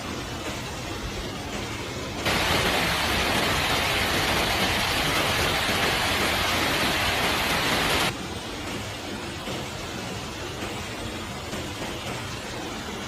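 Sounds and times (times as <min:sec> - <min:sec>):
heavy rain pouring: 0:02.2 - 0:08.2.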